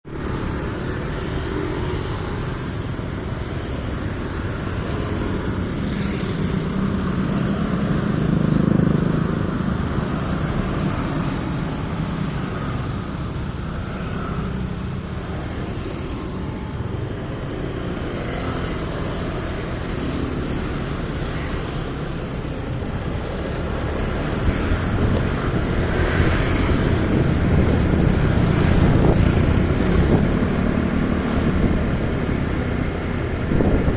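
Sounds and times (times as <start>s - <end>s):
passing traffic noise: 0.0s - 33.9s
motorcycle engine running: 26.9s - 31.1s.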